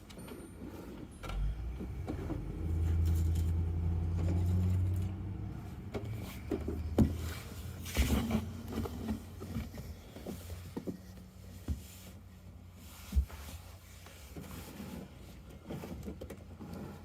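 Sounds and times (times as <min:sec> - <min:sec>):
low hum: 0:01.2 - 0:09.1.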